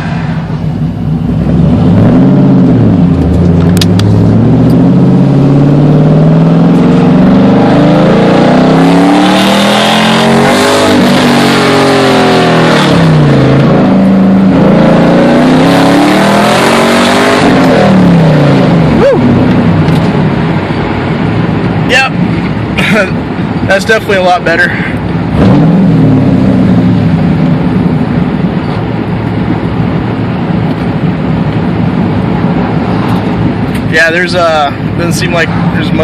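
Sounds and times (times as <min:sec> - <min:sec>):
car engine accelerating hard: 0:00.0 - 0:36.0.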